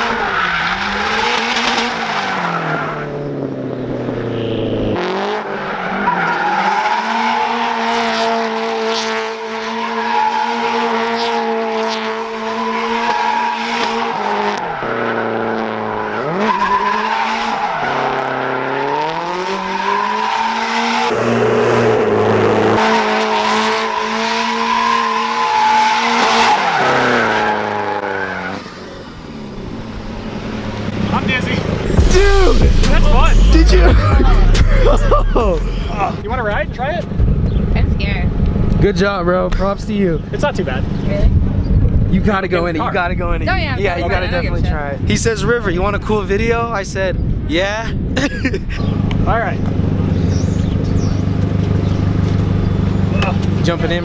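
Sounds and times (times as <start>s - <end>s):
car engine at high revs: 0.0s - 45.4s, 48.0s - 54.0s
tyres squealing: 12.2s - 21.1s, 22.8s - 29.0s, 48.7s - 54.0s.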